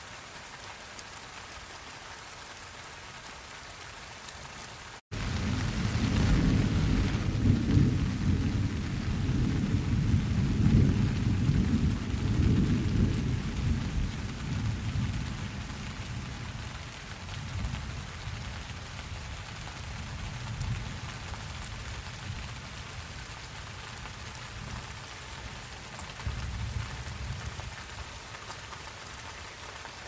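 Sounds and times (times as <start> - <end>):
rain falling: 0.0 - 30.0
thunder rumbling: 5.1 - 18.1.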